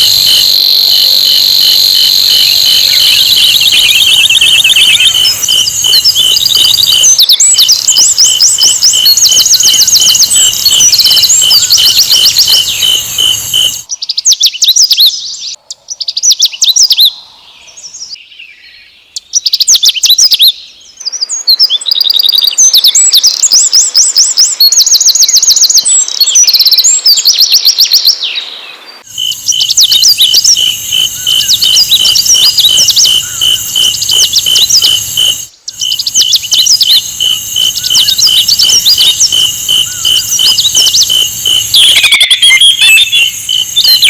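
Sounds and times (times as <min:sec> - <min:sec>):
bird trilling and chirping: 0:00.0 - 0:14.8, 0:29.0 - 0:44.0
steady pulsing high tone: 0:02.4 - 0:07.0, 0:08.1 - 0:13.8, 0:29.1 - 0:44.0.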